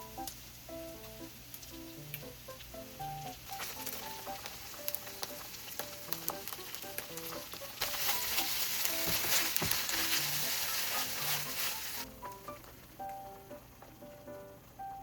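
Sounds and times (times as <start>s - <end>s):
food sizzling in a pan: 0.0s - 15.0s
light crackling: 0.0s - 15.0s.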